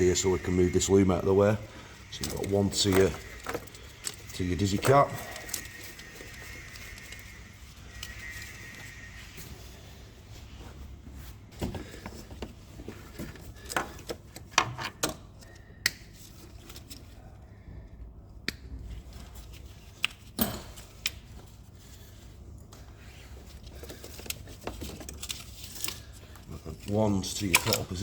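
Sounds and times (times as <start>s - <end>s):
wiring loom being handled: 2.0s - 8.9s, 23.4s - 28.0s.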